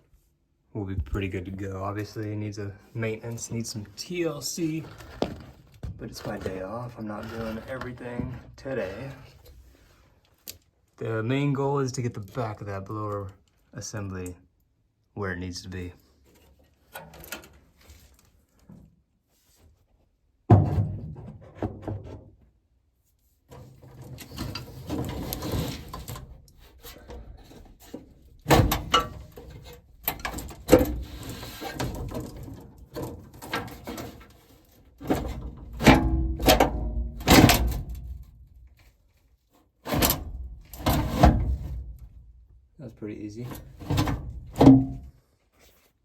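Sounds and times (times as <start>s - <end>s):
sheet metal clunks and knocks: 35.0s - 38.2s, 43.8s - 45.1s.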